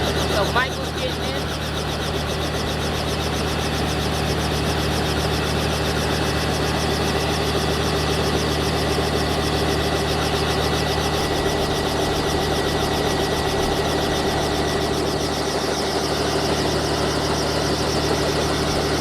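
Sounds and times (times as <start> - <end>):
helicopter engine and rotor: 0.0 - 19.0.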